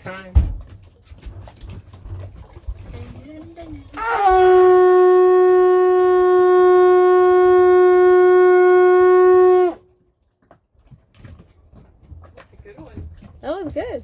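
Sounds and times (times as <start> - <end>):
conch shell horn blowing: 4.0 - 9.9.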